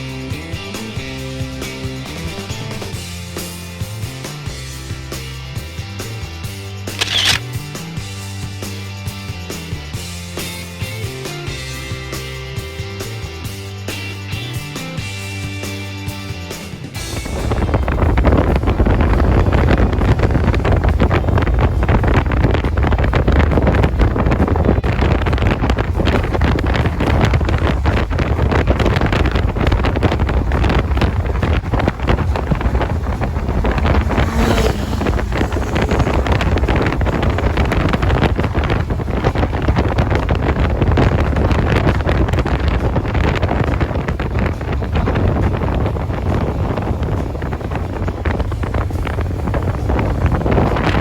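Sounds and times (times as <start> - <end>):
road and engine noise: 0.0 - 51.0
wind buffeting microphone: 16.2 - 51.0.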